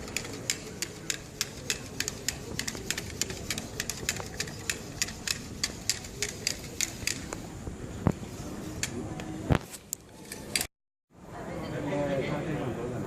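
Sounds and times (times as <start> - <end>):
rapid sharp mechanical clicking: 0.0 - 7.4
steady background hum: 0.0 - 13.0.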